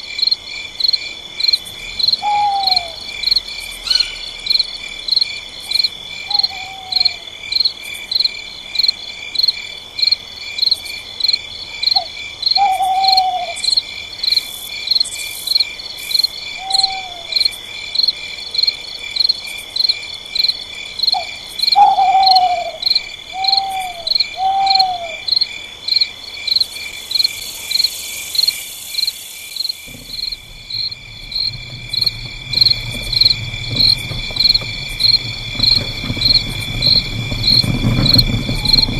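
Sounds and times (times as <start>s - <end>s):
crickets trilling: 0.0s - 38.9s
low rumble: 29.8s - 38.9s.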